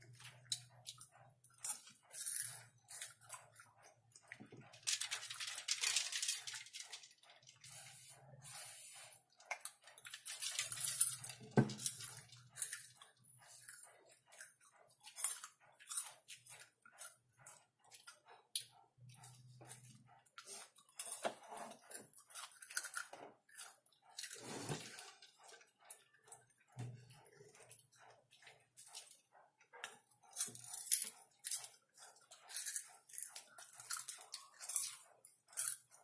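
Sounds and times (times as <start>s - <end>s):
popcorn crunching: 4.7s - 8.1s, 9.6s - 17.1s, 20.4s - 25.3s, 30.3s - 36.0s.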